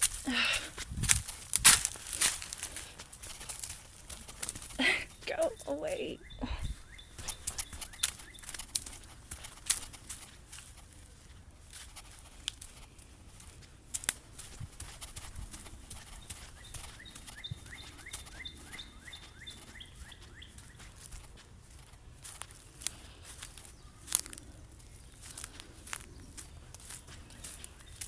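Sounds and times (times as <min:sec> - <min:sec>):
rustling: 0:00.0 - 0:18.3
small bird chirping: 0:03.4 - 0:09.9, 0:15.5 - 0:21.1, 0:26.0 - 0:28.0.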